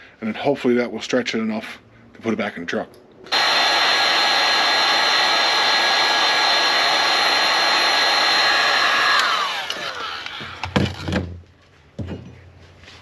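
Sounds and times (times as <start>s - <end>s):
heat gun blowing with motor whine: 3.3s - 11.0s.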